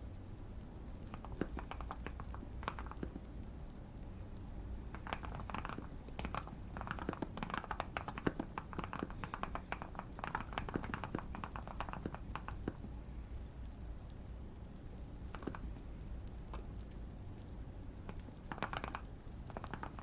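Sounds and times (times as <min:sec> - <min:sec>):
light fire crackling: 0:00.0 - 0:20.0
mechanical keyboard typing: 0:05.0 - 0:12.7, 0:18.5 - 0:20.0.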